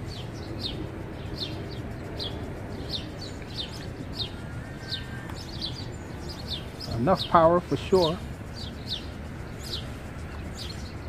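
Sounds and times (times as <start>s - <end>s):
low background rumble: 0.0s - 7.1s
small bird chirping: 0.0s - 11.0s.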